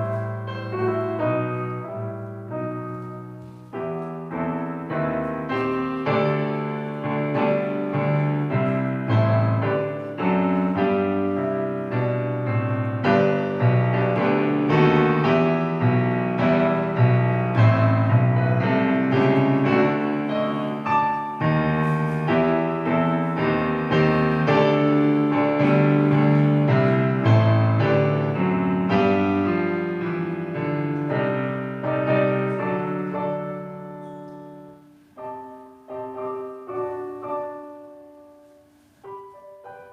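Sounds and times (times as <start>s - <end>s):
solo piano music: 0.0s - 39.9s.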